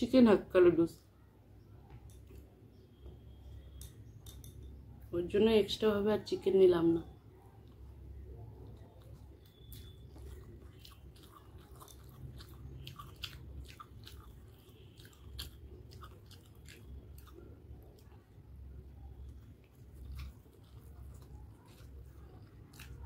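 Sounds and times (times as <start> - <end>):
person chewing noodles: 7.4 - 23.0.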